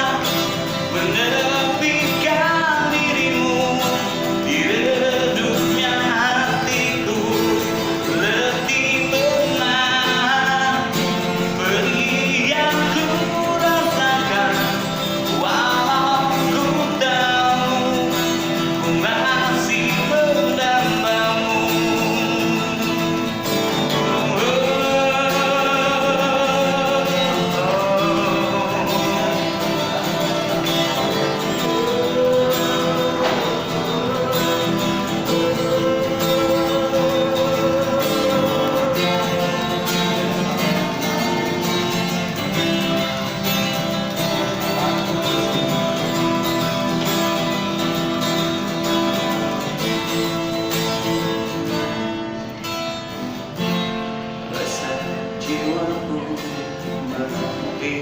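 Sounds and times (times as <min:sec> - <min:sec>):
person singing pop ballad: 0:00.0 - 0:42.5
acoustic guitar strumming: 0:00.0 - 0:58.0.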